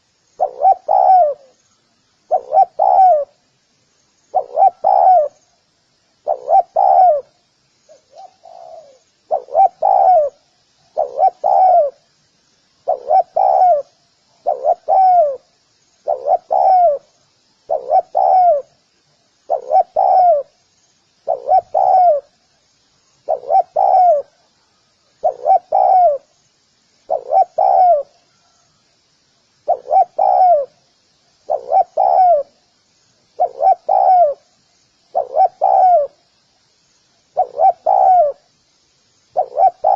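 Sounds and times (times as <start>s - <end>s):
dove cooing: 0.0s - 1.6s, 2.3s - 3.4s, 4.3s - 5.4s, 6.2s - 12.0s, 12.8s - 17.1s, 17.7s - 18.8s, 19.5s - 20.6s, 21.2s - 22.4s, 23.2s - 24.5s, 25.2s - 26.3s, 27.1s - 28.6s, 29.6s - 30.8s, 31.4s - 32.6s, 33.4s - 34.5s, 35.1s - 36.2s, 37.4s - 38.4s, 39.3s - 39.9s
faint high twittering: 0.0s - 39.9s.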